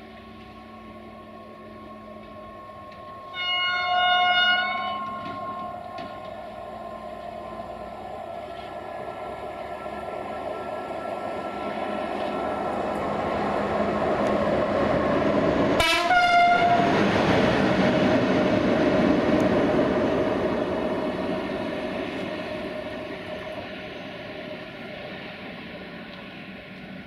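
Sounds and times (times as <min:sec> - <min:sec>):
electric locomotive rumbling past: 0:00.0 - 0:27.0
train horn blast: 0:03.2 - 0:06.4, 0:15.8 - 0:16.9.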